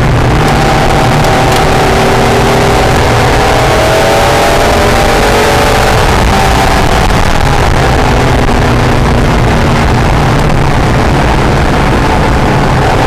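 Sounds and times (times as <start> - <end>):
car engine revving: 0.0 - 13.0
wind and road noise: 0.0 - 13.0.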